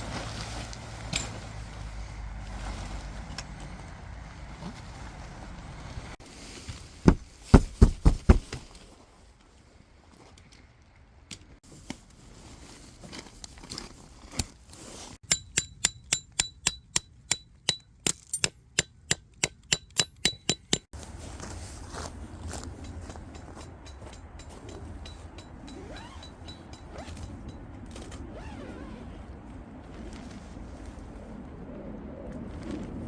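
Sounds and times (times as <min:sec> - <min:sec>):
metallic strikes: 0:15.2 - 0:20.9
ringing metal taps: 0:15.2 - 0:20.9, 0:22.6 - 0:27.8.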